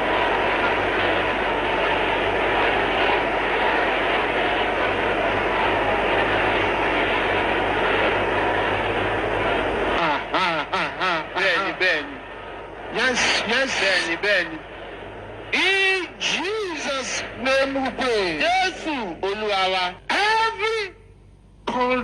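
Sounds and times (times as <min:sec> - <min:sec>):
man speaking: 0:10.0 - 0:12.2, 0:12.9 - 0:14.6, 0:15.6 - 0:21.0
congregation praying aloud: 0:10.0 - 0:12.3, 0:12.9 - 0:14.7, 0:15.5 - 0:21.0.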